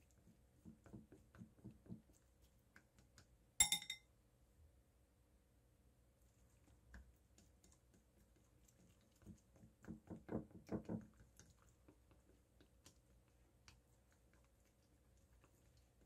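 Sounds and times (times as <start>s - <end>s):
chopsticks tapping ceramic bowl: 3.6s - 4.0s.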